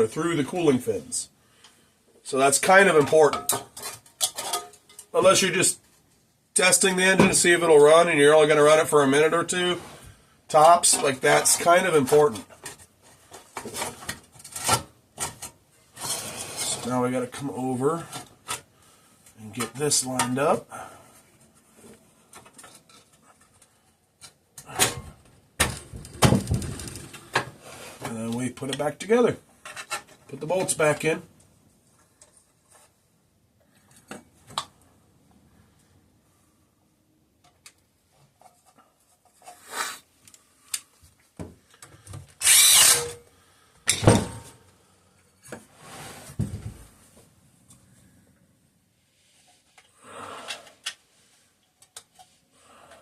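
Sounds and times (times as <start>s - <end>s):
metal parts clunking and rattling: 3.3s - 5.1s, 24.8s - 27.6s
power drill running bolts in: 42.4s - 43.2s.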